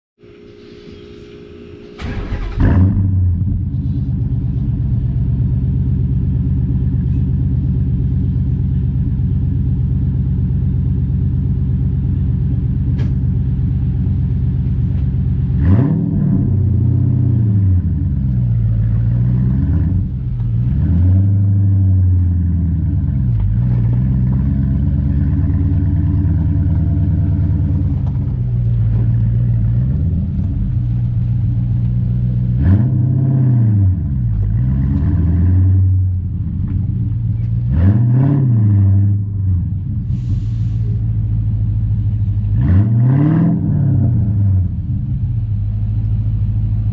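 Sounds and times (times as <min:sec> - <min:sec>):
car engine starting and revving: 0:00.9 - 0:08.5, 0:09.3 - 0:46.9.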